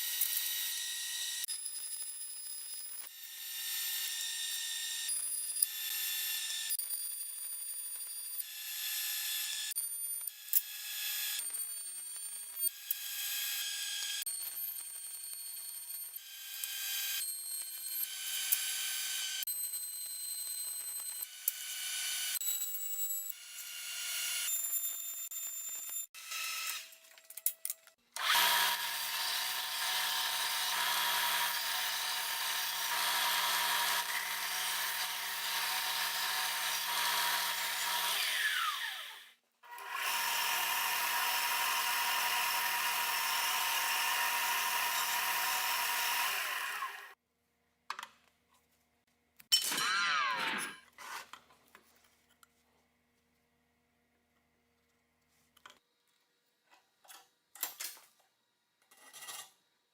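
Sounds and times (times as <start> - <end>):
electric power tool running: 28.2 - 47.2, 49.7 - 50.8.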